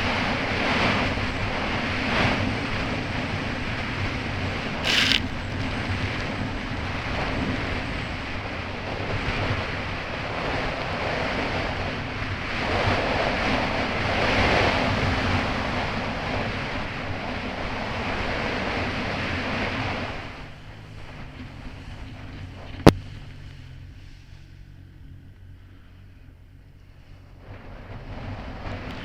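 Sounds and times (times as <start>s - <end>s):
jet ski engine hum: 2.4s - 29.0s
water spray rushing: 4.8s - 5.6s.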